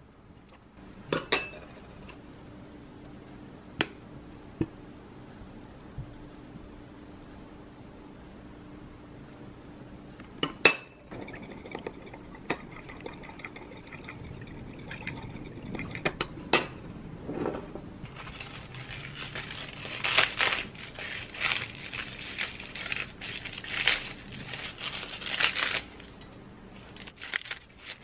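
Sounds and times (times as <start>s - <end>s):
crisp rustling: 18.1s - 28.0s.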